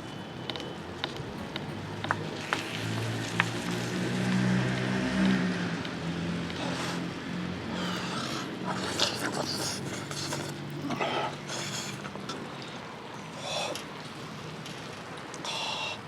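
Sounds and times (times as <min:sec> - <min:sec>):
slurping noodles: 0:07.8 - 0:12.0.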